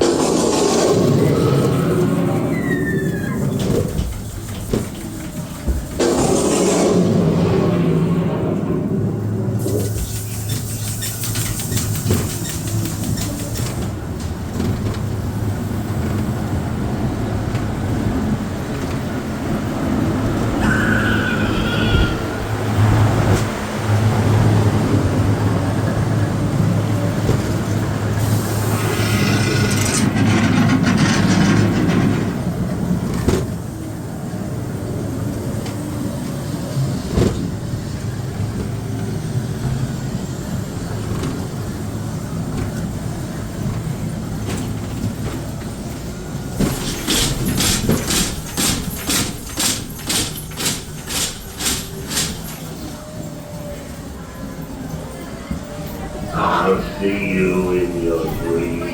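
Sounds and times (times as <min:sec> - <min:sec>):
ride car rumbling on track: 0:00.0 - 0:58.9
hissing burst: 0:05.9 - 0:08.5, 0:28.2 - 0:30.0
sharp rhythmic clacks: 0:46.8 - 0:52.6.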